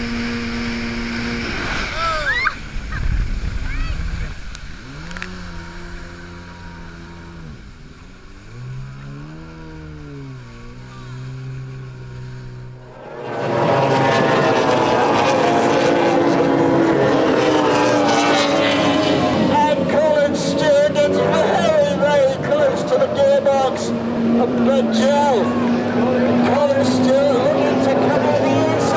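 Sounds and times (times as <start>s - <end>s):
boat motor revving: 0.0s - 28.9s
loud rushing roar: 0.0s - 28.9s.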